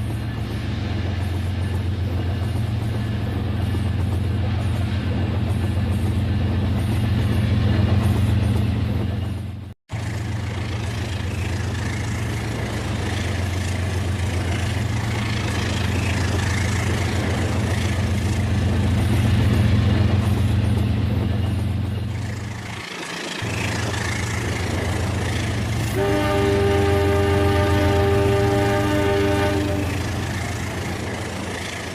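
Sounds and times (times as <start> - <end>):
model train rumbling on track: 0.0 - 31.9
multi-tone train horn: 25.9 - 30.2.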